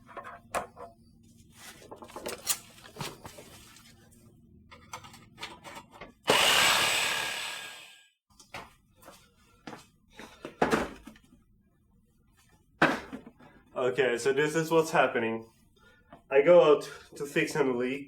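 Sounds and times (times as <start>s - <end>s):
power cutting tool on metal: 6.3s - 8.0s.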